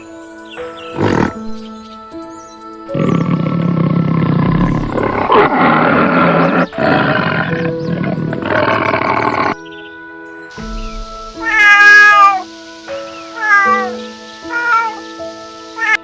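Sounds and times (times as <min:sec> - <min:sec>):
background music: 0:00.0 - 0:16.0
animal harsh call: 0:11.0 - 0:16.0.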